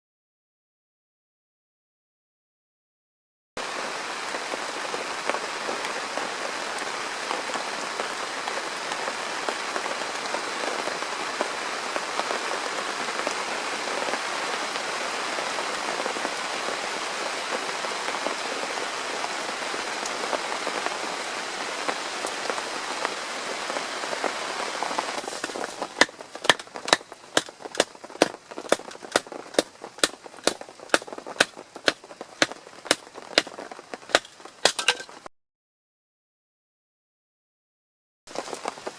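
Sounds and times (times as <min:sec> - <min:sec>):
steady rain falling: 0:03.6 - 0:35.3, 0:38.3 - 0:38.9
sharp taps: 0:25.4 - 0:33.5.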